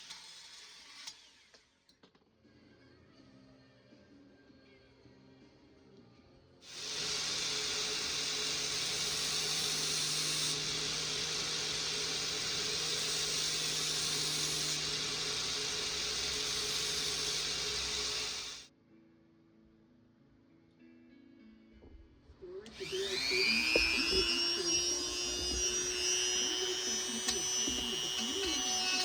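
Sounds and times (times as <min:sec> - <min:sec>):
power tool running: 0:06.7 - 0:18.7, 0:22.6 - 0:29.0.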